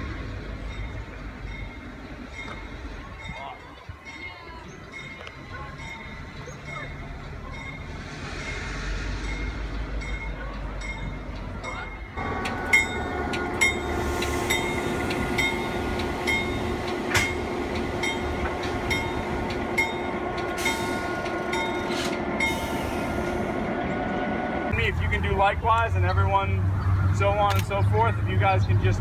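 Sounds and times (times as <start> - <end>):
locomotive engine rumble: 0.0 - 29.0
wheels clicking over rail joints: 9.3 - 22.7.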